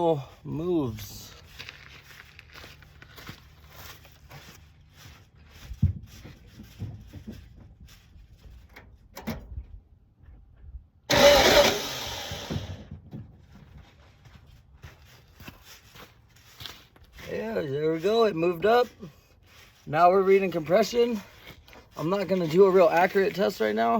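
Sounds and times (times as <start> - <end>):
starter cranking engine: 11.1 - 12.9.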